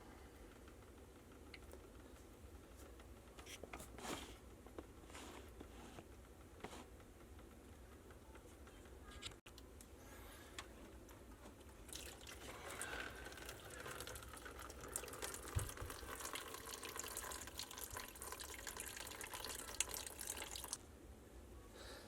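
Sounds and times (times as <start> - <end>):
water trickling and splattering: 11.8 - 20.8.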